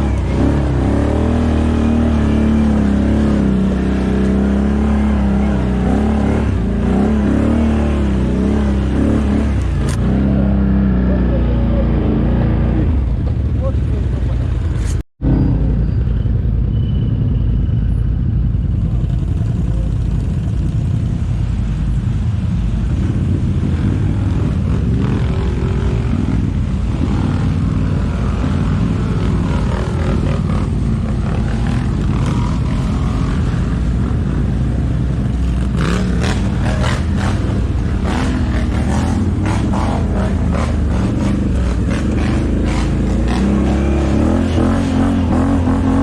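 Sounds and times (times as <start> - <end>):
quad bike engine running: 23.1 - 46.0.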